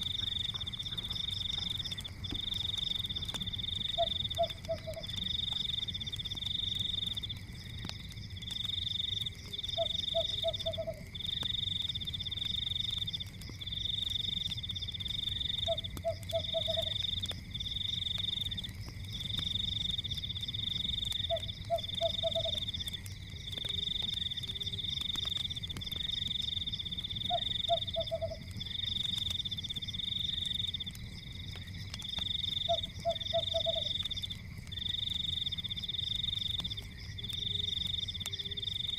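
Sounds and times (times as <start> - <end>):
frog croaking: 0.0 - 5.2, 9.6 - 11.1, 15.5 - 17.0, 21.2 - 22.7, 27.2 - 28.5, 32.6 - 34.2
faint crackles: 0.0 - 38.9.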